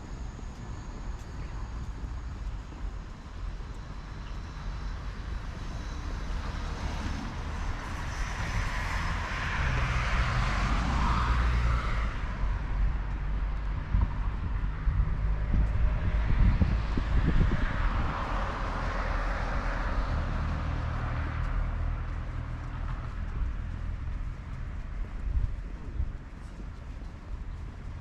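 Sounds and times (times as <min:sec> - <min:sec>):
city traffic rumbling: 0:00.0 - 0:28.0
vehicle passing: 0:05.8 - 0:24.9.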